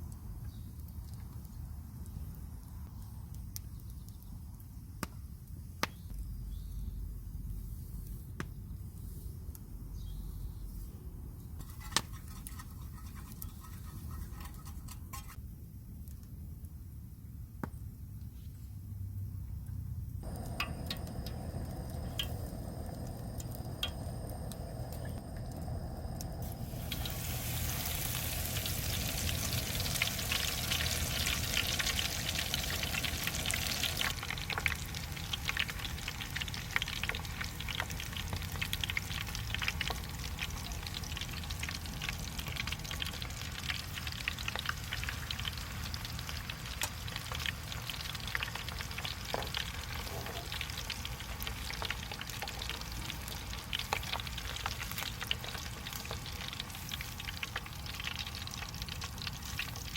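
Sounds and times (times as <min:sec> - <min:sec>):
food sizzling in hot oil: 0:20.2 - 0:59.9.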